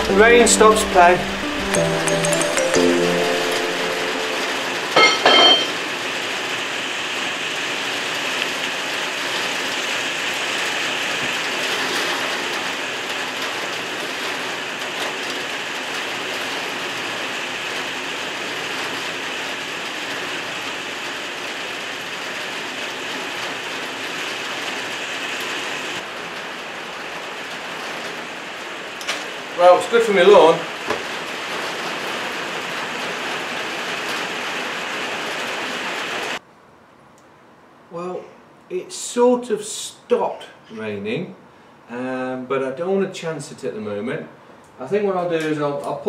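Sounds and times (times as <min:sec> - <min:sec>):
steady rain falling: 0:00.0 - 0:05.0, 0:05.7 - 0:36.4.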